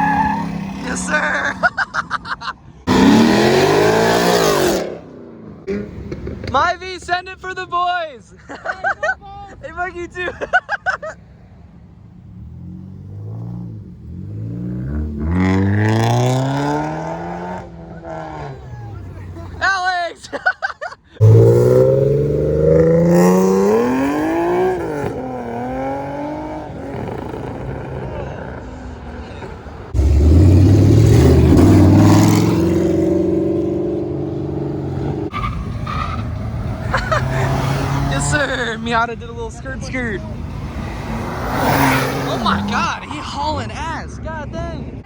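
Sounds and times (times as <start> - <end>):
car accelerating hard: 2.8 - 6.5, 12.2 - 19.6, 21.2 - 43.6.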